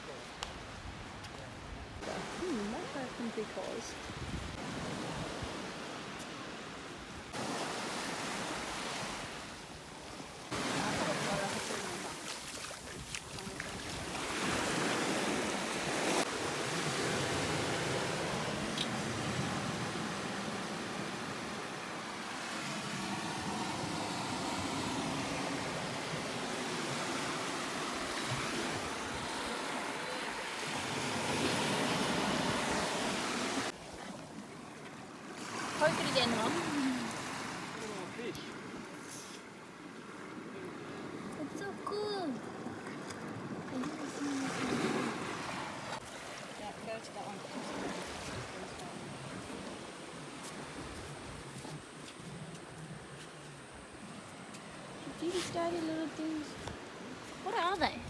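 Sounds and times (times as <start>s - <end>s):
water rushing: 2.0s - 3.9s, 10.3s - 38.9s, 39.6s - 50.2s.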